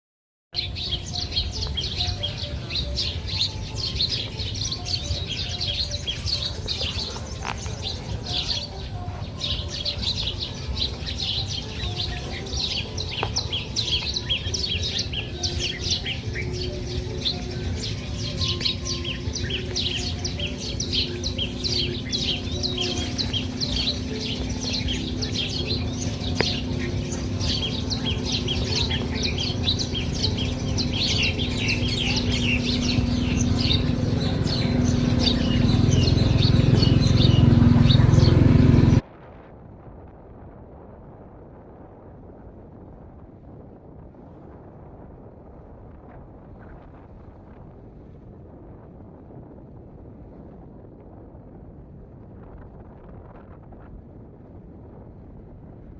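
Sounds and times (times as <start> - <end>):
many small birds chirping: 0.6 - 39.0
steady low rumble: 0.6 - 55.9.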